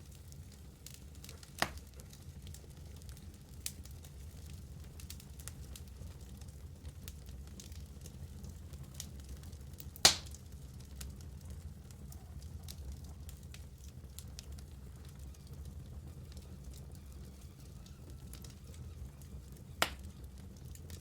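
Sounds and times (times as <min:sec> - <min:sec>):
wood fire crackling: 0:00.0 - 0:21.0
loud sharp pop of fire: 0:01.6 - 0:01.9, 0:10.0 - 0:10.4, 0:19.8 - 0:20.1.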